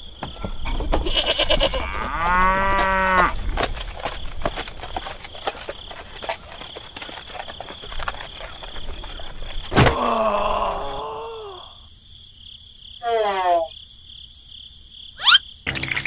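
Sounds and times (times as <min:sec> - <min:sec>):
insects chirring: 0:00.0 - 0:16.0
cow mooing: 0:01.5 - 0:03.4.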